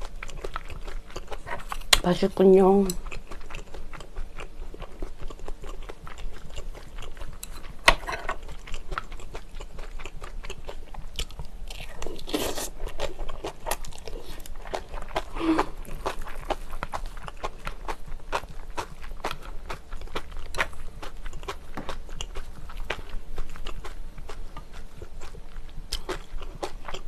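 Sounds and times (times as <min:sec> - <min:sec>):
wet chewing and crunching: 0:00.0 - 0:27.0.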